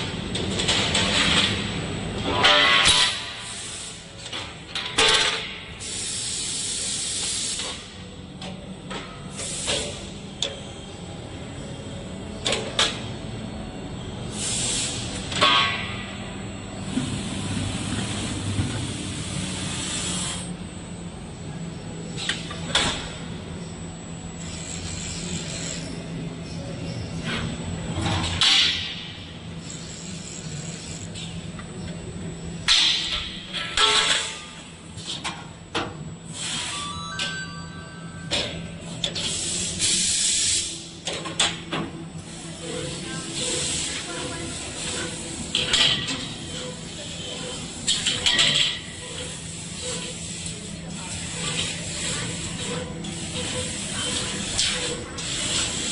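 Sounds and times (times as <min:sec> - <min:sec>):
laser cutter hissing: 0:03.3 - 0:04.1, 0:05.8 - 0:07.9, 0:09.3 - 0:10.1, 0:14.3 - 0:15.2, 0:19.0 - 0:20.5, 0:39.2 - 0:40.9, 0:42.2 - 0:45.7, 0:48.9 - 0:55.9
low machine hum: 0:09.9 - 0:39.5.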